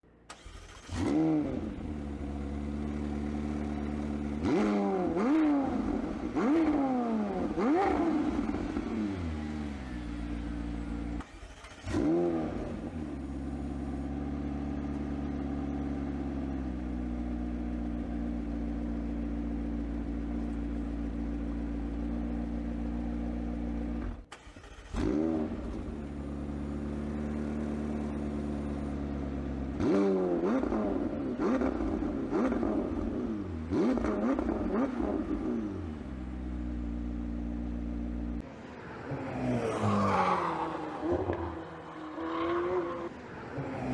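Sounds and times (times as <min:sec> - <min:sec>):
engine revving throttle blips: 0:00.3 - 0:14.0
car engine idling: 0:12.7 - 0:24.9.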